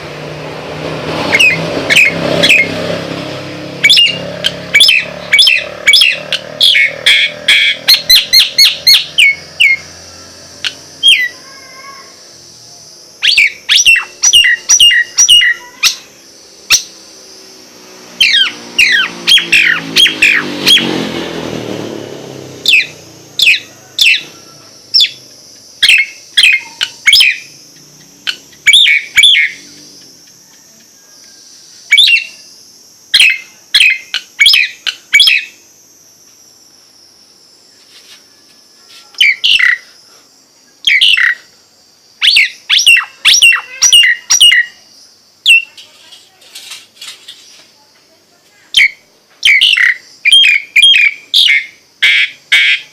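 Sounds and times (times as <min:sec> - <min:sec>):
myna whistling calls: 0:01.3 - 0:02.8, 0:03.8 - 0:12.5, 0:13.2 - 0:17.0, 0:18.2 - 0:21.0, 0:22.6 - 0:35.7, 0:38.3 - 0:40.0, 0:40.7 - 0:41.5, 0:42.2 - 0:45.8, 0:48.7 - 0:52.9.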